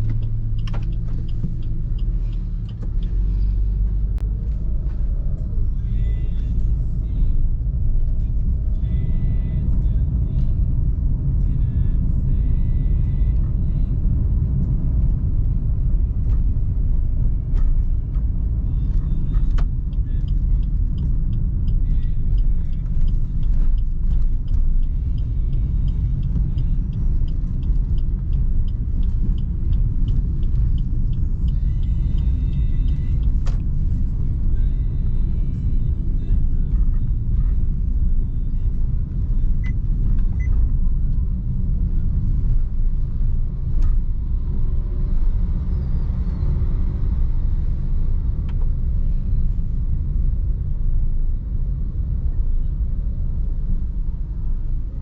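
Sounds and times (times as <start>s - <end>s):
light ticks: 0.0s - 4.7s, 17.6s - 37.4s
engine and road rumble: 0.0s - 55.0s.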